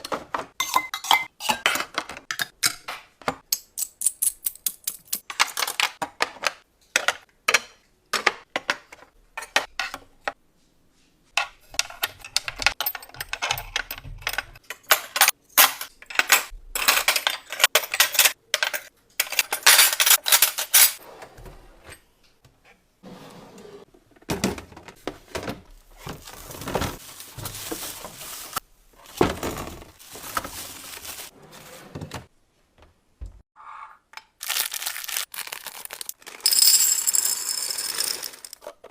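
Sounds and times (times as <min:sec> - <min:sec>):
dishes and utensils clinking: 0:00.5 - 0:02.9
rustling and scraping: 0:24.9 - 0:32.3.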